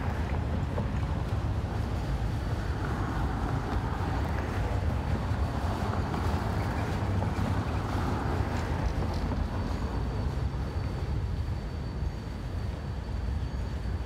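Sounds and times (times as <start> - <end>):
train wheels rumbling on rail: 0.0 - 14.0
faint high whine: 7.6 - 14.0.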